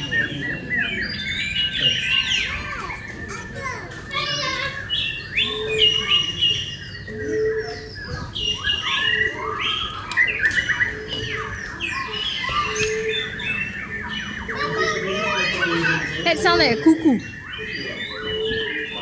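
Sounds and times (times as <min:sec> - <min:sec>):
birds chirping and whistling: 0:00.0 - 0:19.0
low hooting bird call: 0:04.7 - 0:19.0.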